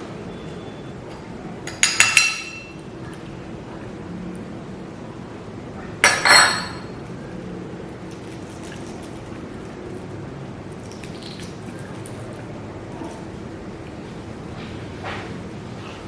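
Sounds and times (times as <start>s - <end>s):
utensil clinking against dish: 1.7s - 2.8s, 6.0s - 6.9s.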